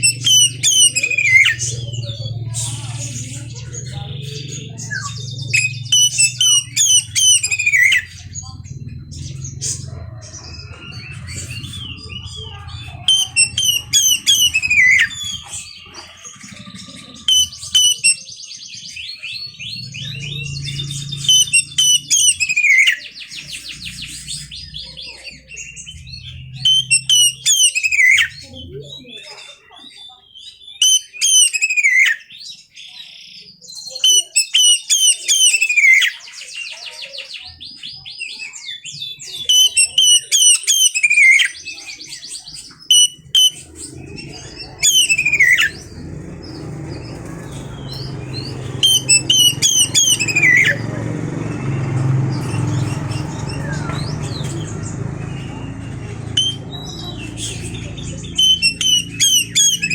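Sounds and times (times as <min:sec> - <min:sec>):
steady low hum: 0:00.0 - 0:18.1, 0:43.2 - 0:59.9
bird singing whistles and trills: 0:00.0 - 0:59.9.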